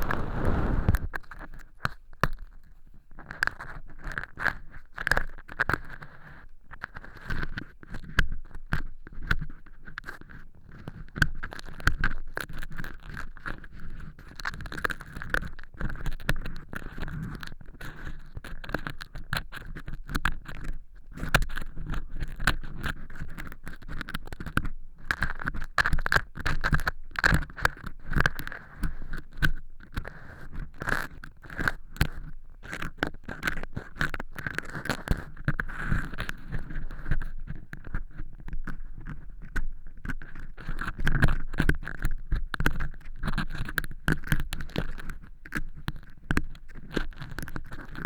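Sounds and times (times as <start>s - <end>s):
ear pick scraping crunchy material: 0.0s - 1.1s.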